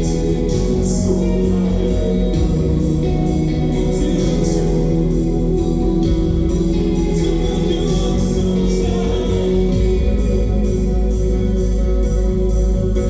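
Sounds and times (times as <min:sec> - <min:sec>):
electric guitar: 0:00.0 - 0:13.0
person singing: 0:00.0 - 0:13.0.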